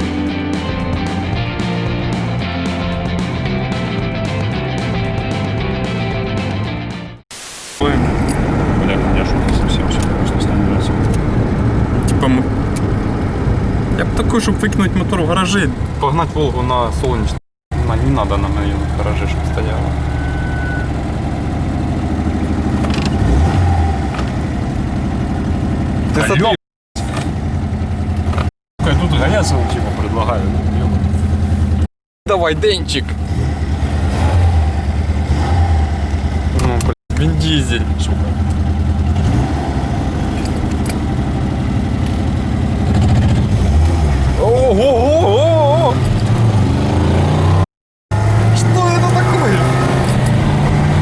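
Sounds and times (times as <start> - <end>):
car engine running: 7.9 - 44.9.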